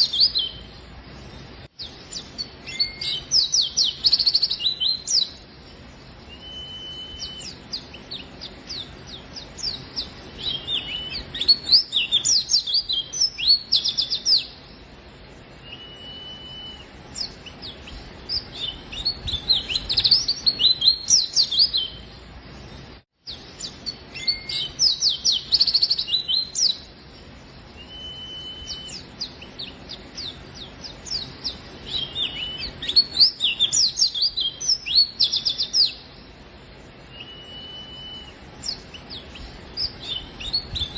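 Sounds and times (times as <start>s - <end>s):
bird chirping trills: 0.0s - 40.9s
bird whistled notes: 2.1s - 5.3s, 6.3s - 14.5s, 15.6s - 17.7s, 23.6s - 26.8s, 27.8s - 30.4s, 31.1s - 36.0s, 37.1s - 40.9s.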